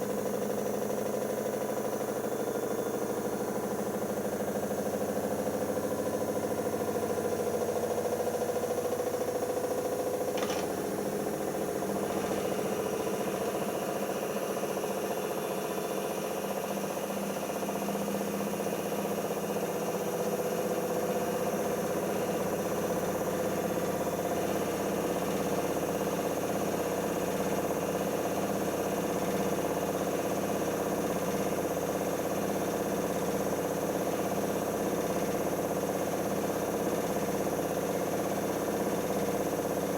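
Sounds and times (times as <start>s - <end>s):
washing machine spinning: 0.0s - 18.1s.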